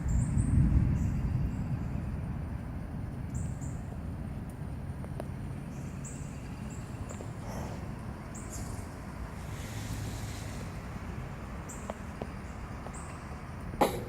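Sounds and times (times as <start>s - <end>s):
wind rumbling on microphone: 0.0s - 14.0s
bird chirping: 5.6s - 9.8s, 10.4s - 14.0s.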